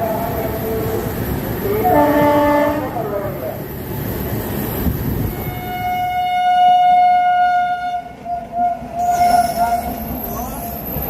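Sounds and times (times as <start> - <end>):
train rumbling: 0.0 - 11.0
train horn blasts: 1.8 - 3.1, 5.3 - 9.9.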